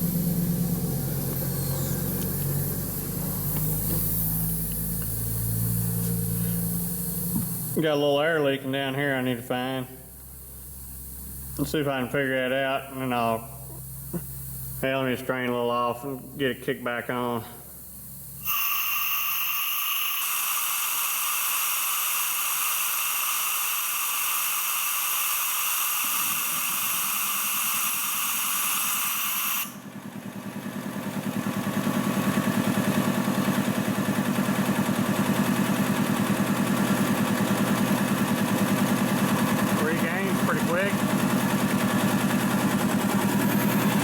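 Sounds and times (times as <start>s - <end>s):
compressed air hissing out: 0.0s - 7.8s, 18.4s - 29.8s
air compressor pumping: 0.0s - 8.0s, 13.0s - 15.2s, 17.6s - 44.0s.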